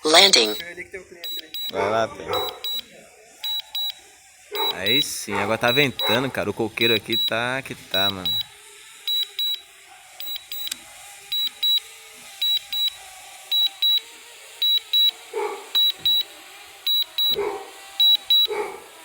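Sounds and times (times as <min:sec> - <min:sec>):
high-pitched double beeps: 0:00.0 - 0:00.6
dog barking: 0:01.7 - 0:02.8, 0:04.5 - 0:06.5, 0:09.9 - 0:10.2, 0:15.1 - 0:16.1, 0:17.3 - 0:19.0.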